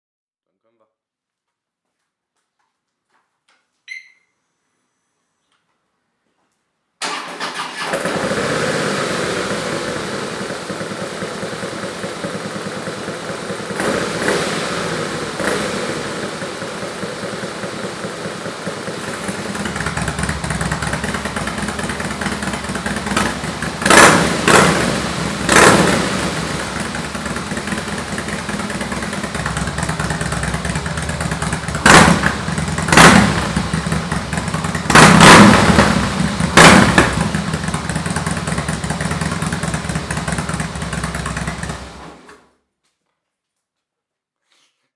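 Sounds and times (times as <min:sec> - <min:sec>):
motorcycle engine revving: 0:07.0 - 0:42.3
motorcycle engine starting: 0:07.0 - 0:42.6
motorcycle engine idling: 0:07.8 - 0:42.2.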